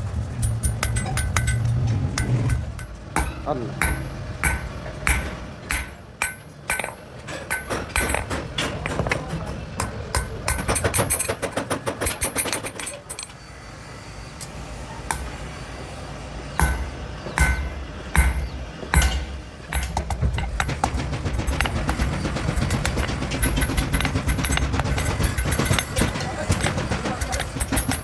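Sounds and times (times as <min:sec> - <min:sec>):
hammer blows on steel ringing: 0:00.5 - 0:09.2, 0:16.6 - 0:20.8.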